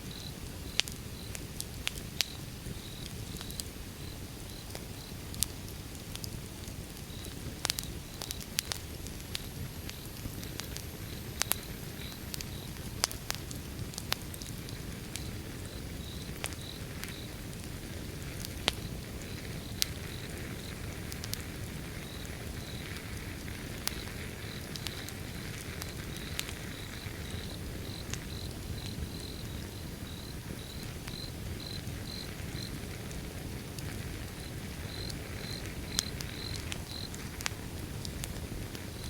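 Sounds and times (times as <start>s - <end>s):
wood fire crackling and popping: 0.0s - 39.0s
insects chirping: 0.1s - 1.4s, 11.0s - 12.8s, 15.1s - 17.4s, 21.8s - 37.6s.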